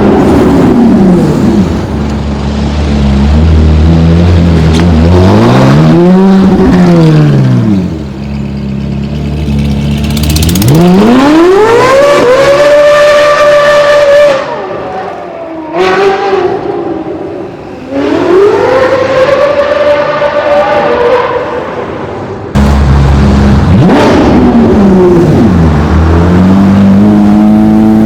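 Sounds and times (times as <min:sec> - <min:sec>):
sports car engine revving: 0:02.6 - 0:08.1, 0:09.4 - 0:14.8, 0:22.6 - 0:28.0.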